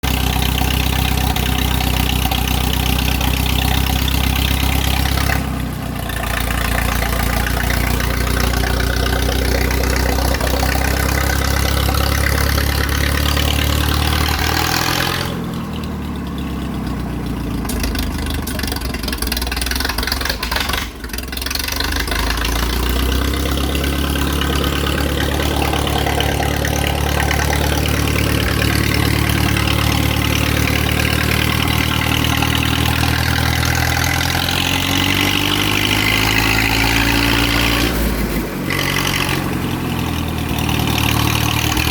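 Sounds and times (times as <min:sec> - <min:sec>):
tractor engine idling: 0:00.0 - 0:41.9.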